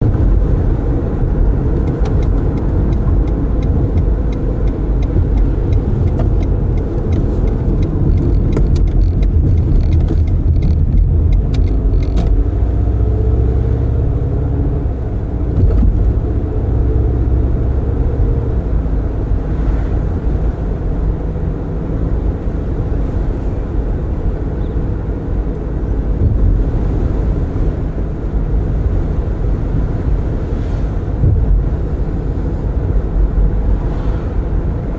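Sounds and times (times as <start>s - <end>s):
car road and engine rumble: 0.0s - 34.9s
wind through open windows: 0.0s - 34.9s
light ticking: 1.7s - 12.4s.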